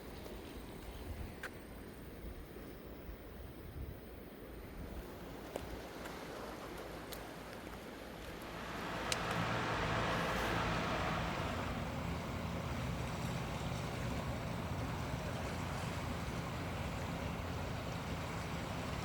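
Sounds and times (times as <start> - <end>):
sea waves washing on shore: 5.0 - 19.0
low steady hum: 8.2 - 19.0.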